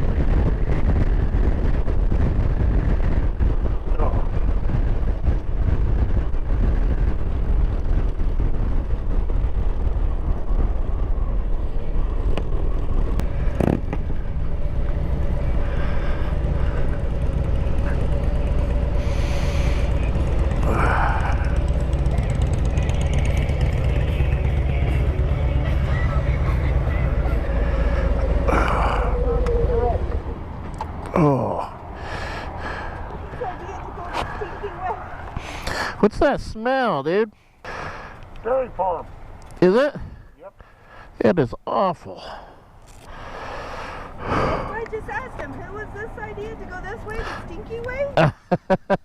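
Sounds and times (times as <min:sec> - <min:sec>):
motorcycle engine running: 0:00.0 - 0:31.4
road and wind noise: 0:00.0 - 0:49.0.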